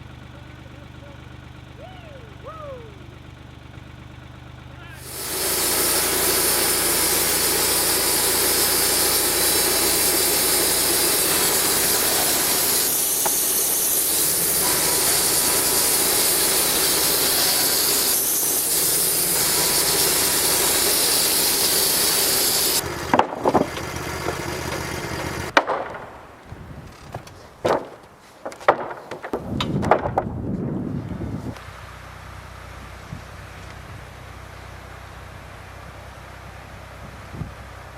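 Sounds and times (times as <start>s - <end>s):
clunks: 0.0s - 31.6s
sawmill engine: 0.0s - 37.9s
bandsaw rasping through log: 5.0s - 25.4s.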